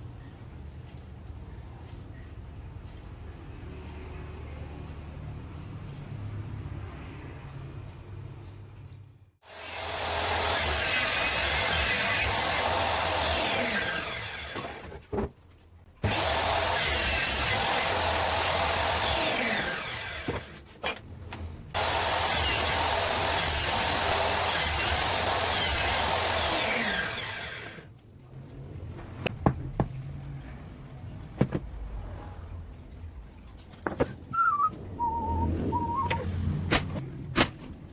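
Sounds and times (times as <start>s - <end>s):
power tool running: 9.4s - 14.9s, 16.0s - 20.5s, 21.8s - 27.9s.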